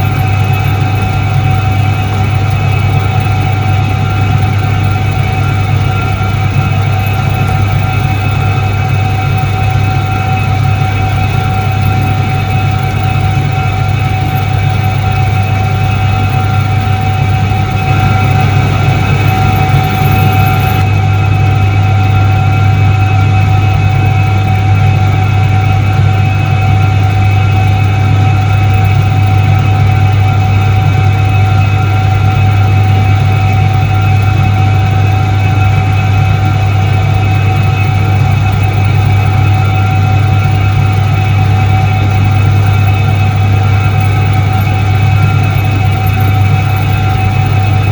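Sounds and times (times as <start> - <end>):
washing machine motor humming: 0.0 - 25.1, 36.7 - 47.9.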